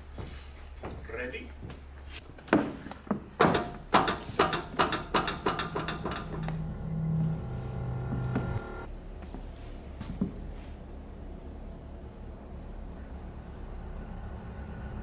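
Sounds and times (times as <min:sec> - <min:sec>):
sharp knocks: 0:03.4 - 0:06.6
droning hum of several tones: 0:06.0 - 0:09.0, 0:11.1 - 0:15.0.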